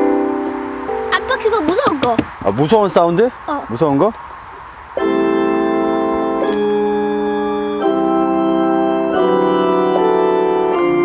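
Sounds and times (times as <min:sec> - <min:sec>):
electronic organ chords: 0:00.0 - 0:01.6, 0:05.0 - 0:11.0.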